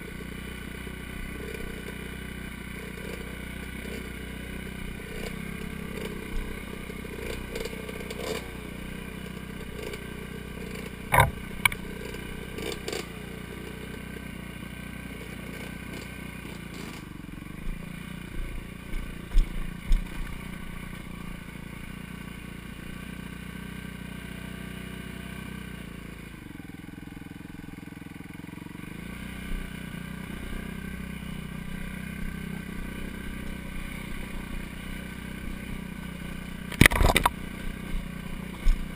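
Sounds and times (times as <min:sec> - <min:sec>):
dirt bike engine running: 0:00.0 - 0:38.9
sharp knocks and clatter: 0:11.1 - 0:11.8, 0:36.7 - 0:37.4.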